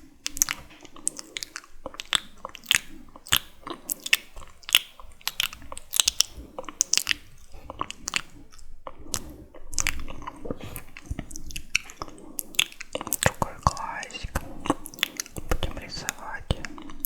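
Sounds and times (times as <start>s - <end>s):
wet mouth clicks and lip smacks: 0.2s - 17.0s.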